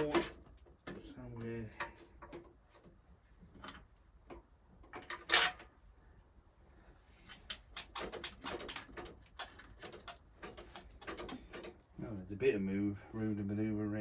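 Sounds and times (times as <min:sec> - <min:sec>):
metal rattles: 0:00.0 - 0:05.8, 0:07.4 - 0:12.0
exhaust parts knocking and clicking: 0:07.4 - 0:12.0.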